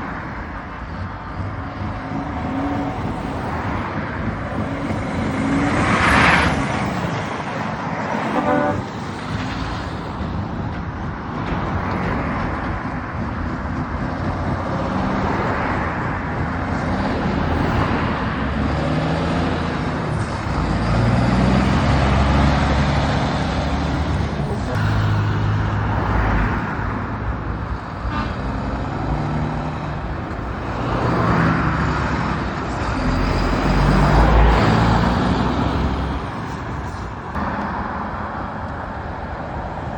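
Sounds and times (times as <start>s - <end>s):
heavy trucks driving past: 0.0s - 39.9s
truck horn toot: 8.2s - 9.0s, 28.1s - 28.6s.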